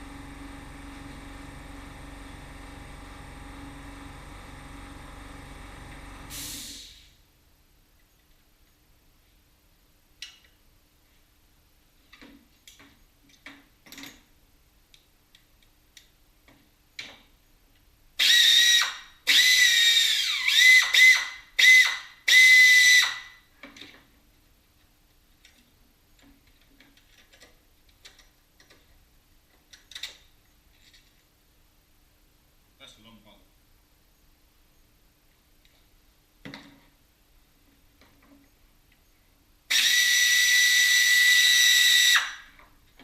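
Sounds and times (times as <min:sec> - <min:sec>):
power tool whining: 0:00.0 - 0:06.8, 0:18.2 - 0:23.3, 0:39.7 - 0:42.5.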